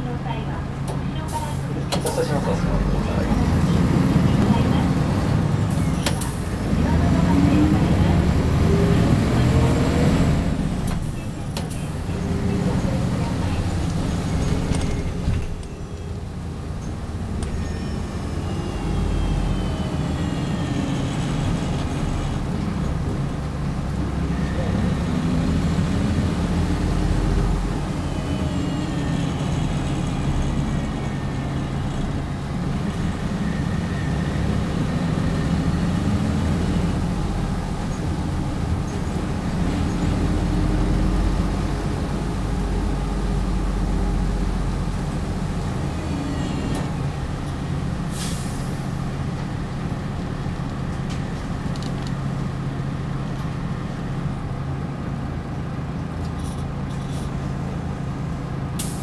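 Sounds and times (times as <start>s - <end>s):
bus engine drone: 0.0s - 59.0s
air brake hiss: 48.1s - 48.9s, 58.8s - 59.0s.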